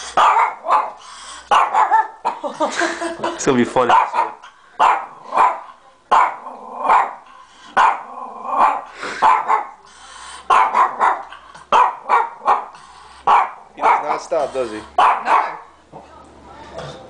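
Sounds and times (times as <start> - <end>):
dog barking: 0.2 - 2.4, 3.8 - 7.2, 7.8 - 9.8, 10.5 - 12.7, 13.3 - 14.4, 15.0 - 15.7.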